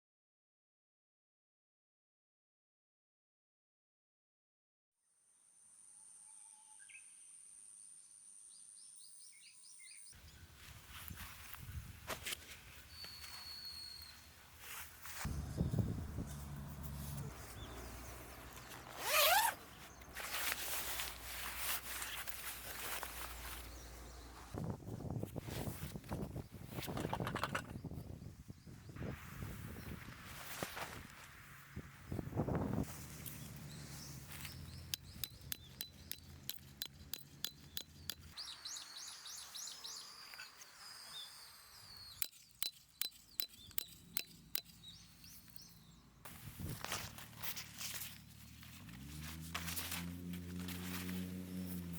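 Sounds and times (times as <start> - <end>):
songbird chirping: 6.3 - 11.8, 12.6 - 24.6, 33.1 - 49.2
rustles and scuffs: 10.5 - 27.0, 29.9 - 31.6, 32.7 - 34.9, 46.3 - 51.9
zipper pulled: 18.6 - 23.1.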